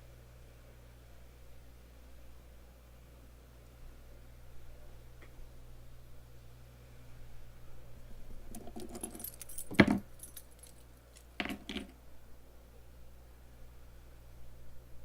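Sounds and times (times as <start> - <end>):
small metal objects clinking: 8.6 - 11.9.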